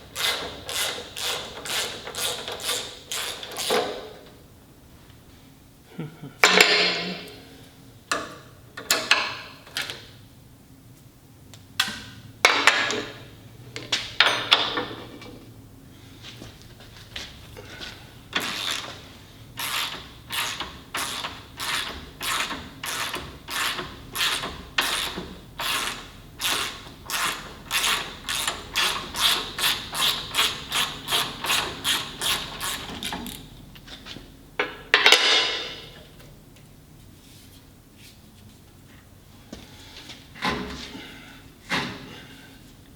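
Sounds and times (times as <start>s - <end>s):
hand ratchet strokes: 0.0s - 4.0s, 18.3s - 33.4s.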